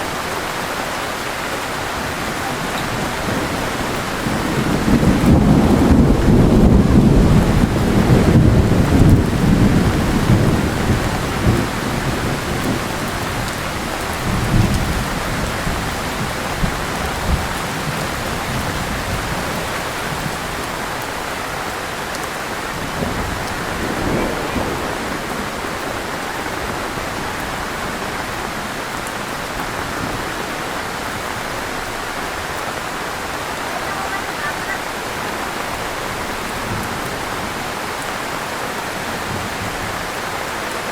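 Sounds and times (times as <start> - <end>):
heavy rain falling: 0.0 - 40.9
low rumble of thunder or wind: 1.9 - 21.4, 22.6 - 34.2.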